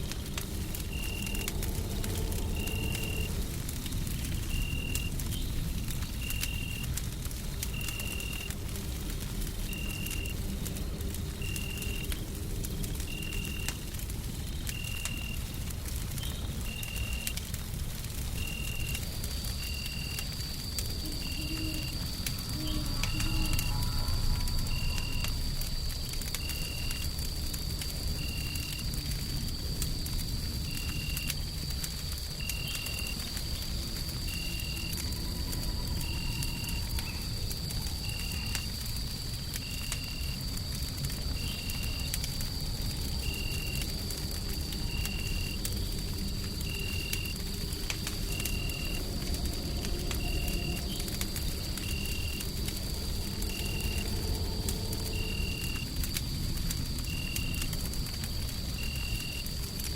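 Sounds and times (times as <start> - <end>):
deep white-noise rumble: 0.0 - 6.2
constant high whine: 0.0 - 59.9
wood fire crackling: 0.0 - 59.9
faint high whine: 18.5 - 27.1.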